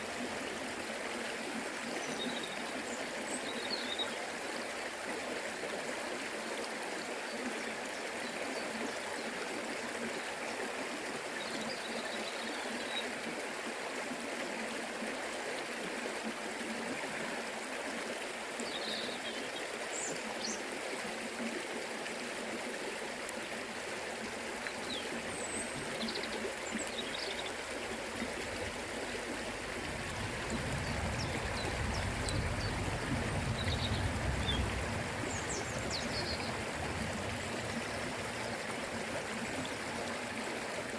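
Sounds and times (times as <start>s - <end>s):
river flowing: 0.0s - 40.9s
low rumble: 29.7s - 37.3s.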